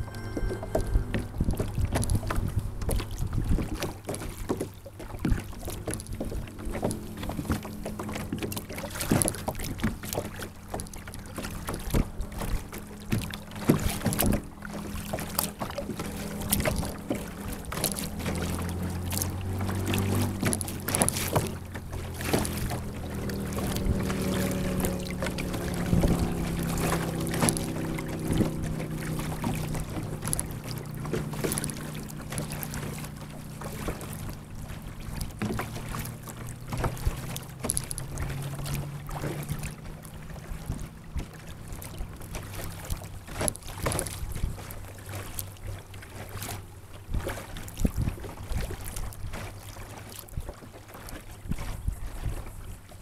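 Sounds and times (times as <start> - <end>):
low hum: 0.0 - 4.5, 5.4 - 43.2
paddle blades splashing: 0.0 - 53.0.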